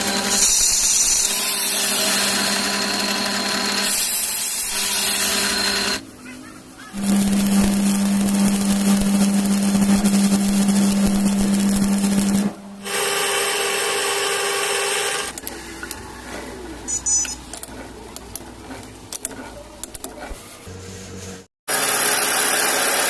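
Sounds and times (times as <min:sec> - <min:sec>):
electric power tool motor: 0:00.0 - 0:06.0, 0:06.9 - 0:15.4.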